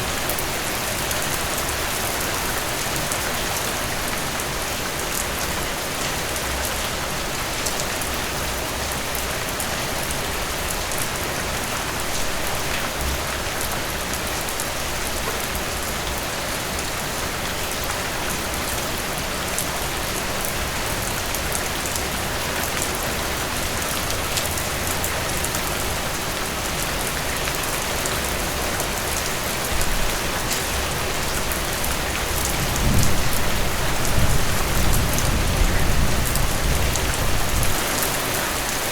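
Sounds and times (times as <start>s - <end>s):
heavy rain pattering: 0.0s - 38.9s
thunder rumbling: 32.5s - 37.8s.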